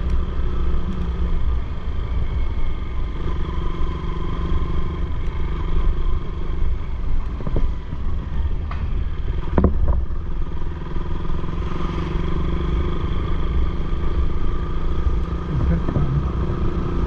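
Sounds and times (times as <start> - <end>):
motorcycle engine running: 0.0 - 17.0
road rumble: 0.0 - 17.0.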